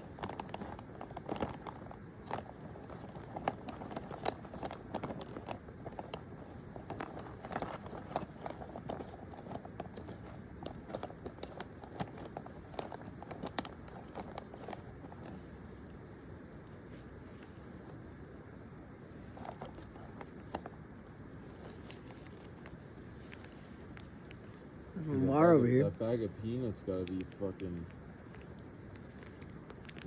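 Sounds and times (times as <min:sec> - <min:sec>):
plastic packaging crinkling: 0:00.0 - 0:15.7, 0:19.2 - 0:20.7, 0:21.4 - 0:24.9, 0:26.8 - 0:30.0.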